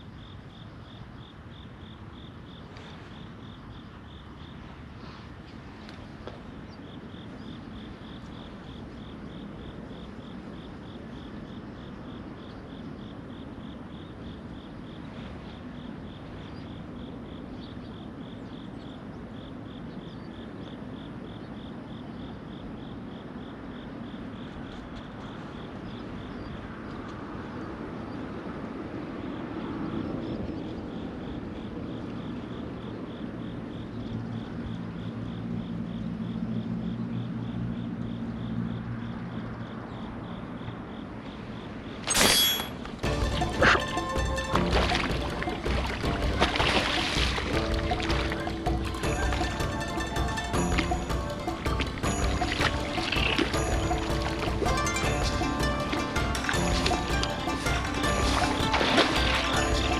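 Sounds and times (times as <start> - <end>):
insect chirping: 0.0 - 5.6, 6.5 - 24.8, 31.0 - 59.9.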